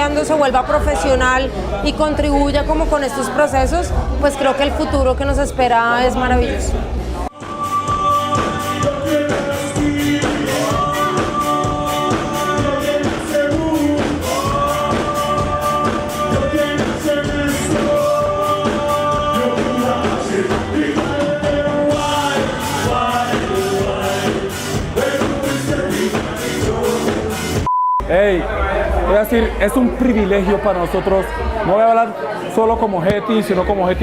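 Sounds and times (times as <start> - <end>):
person singing over a beat: 7.3 - 27.6.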